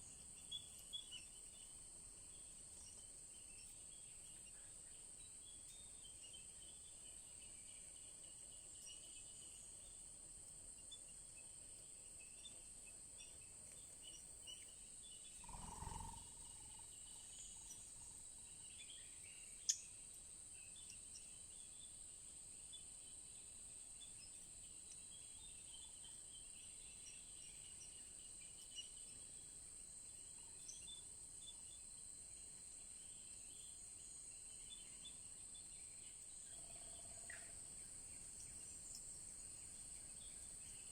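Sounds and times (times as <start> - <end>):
small birds chirping: 10.8 - 21.9
insect drone: 14.8 - 20.0.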